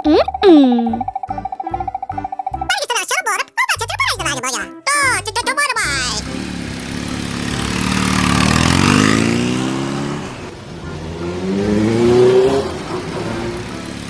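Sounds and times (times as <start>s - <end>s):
engine revving: 6.3s - 14.0s.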